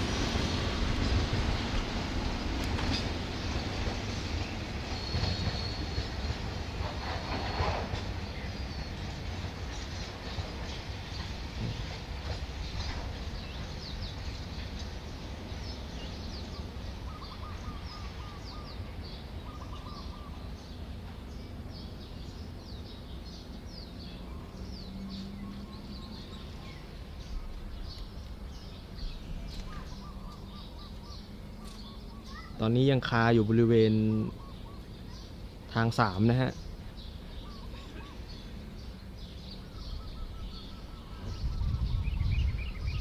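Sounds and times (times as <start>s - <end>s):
birds chirping and trilling: 12.6s - 43.0s.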